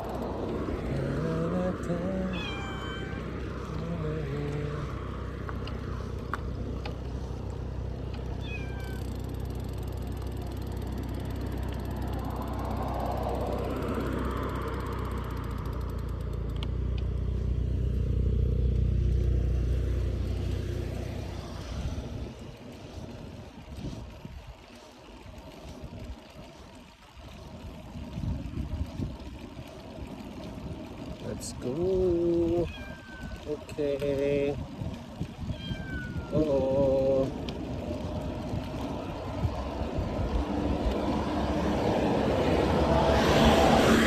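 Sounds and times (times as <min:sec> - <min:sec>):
vehicle rumble: 0:00.0 - 0:44.0
cat meowing: 0:02.3 - 0:03.3, 0:08.4 - 0:09.0, 0:32.6 - 0:33.4, 0:35.4 - 0:36.4.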